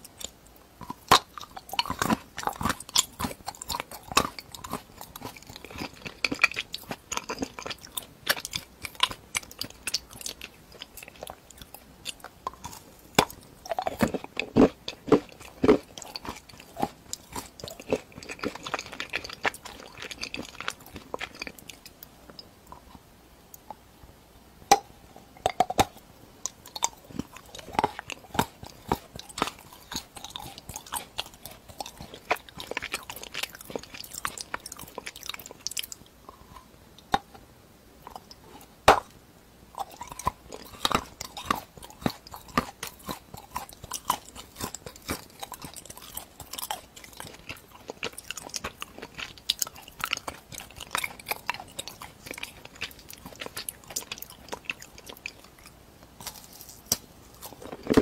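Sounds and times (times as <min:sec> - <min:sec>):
crunchy chewing: 0:00.0 - 0:23.8, 0:25.2 - 0:37.4, 0:38.0 - 0:58.0.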